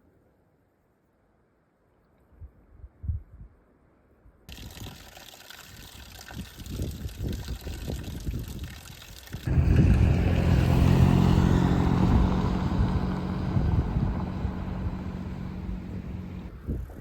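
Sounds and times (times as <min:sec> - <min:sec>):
vehicle engine running: 0:09.4 - 0:16.6.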